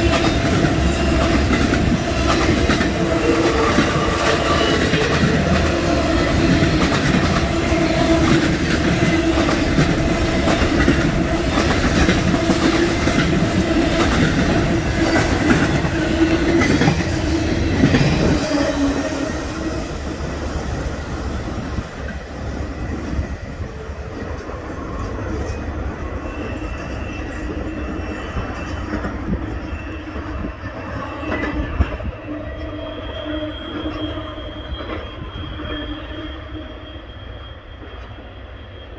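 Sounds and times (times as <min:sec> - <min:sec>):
freight train wheels clicking over rails: 0:00.0 - 0:23.2
train wheels squealing: 0:00.0 - 0:38.9.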